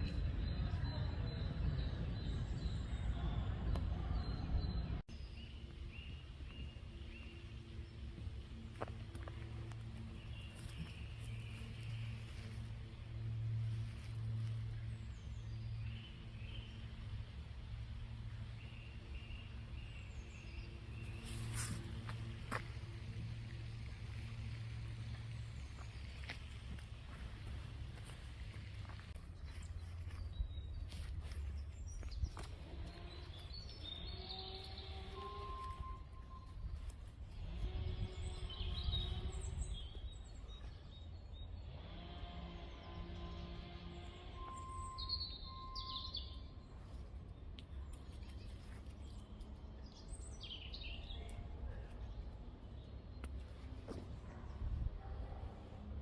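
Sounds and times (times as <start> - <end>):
steady low rumble: 0.0 - 41.7
birds chirping: 0.0 - 56.0.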